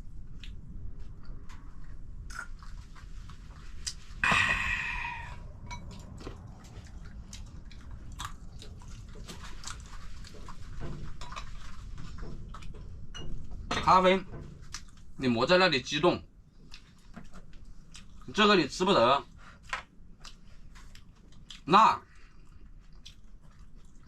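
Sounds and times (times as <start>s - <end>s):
chewing: 5.3s - 13.0s, 14.6s - 15.2s, 16.5s - 18.4s, 19.3s - 24.0s.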